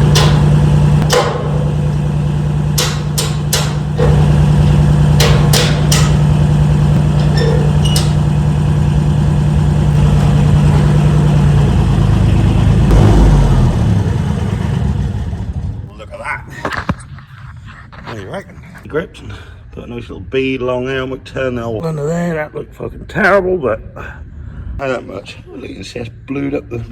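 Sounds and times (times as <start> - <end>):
electric welder humming and crackling: 0.0 - 13.2
sharp knocks: 0.0 - 14.0.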